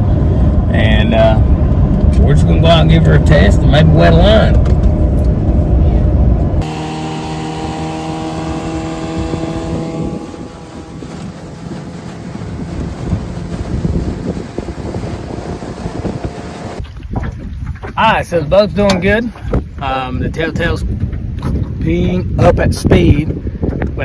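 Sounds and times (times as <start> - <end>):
wind buffeting microphone: 0.0 - 24.0
outboard motor running: 6.6 - 18.0.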